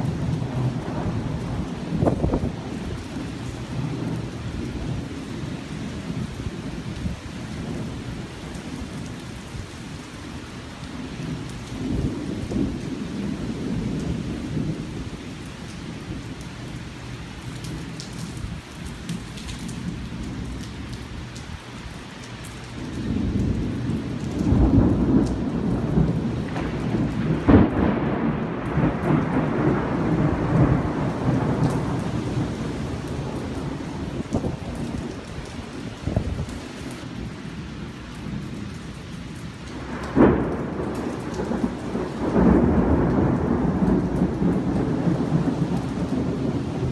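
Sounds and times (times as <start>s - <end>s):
thunder rumbling: 0.0s - 9.8s, 10.9s - 16.8s, 22.6s - 46.9s
steady rain: 0.0s - 46.9s
sharp thunder crack: 24.4s - 32.4s, 39.8s - 46.9s.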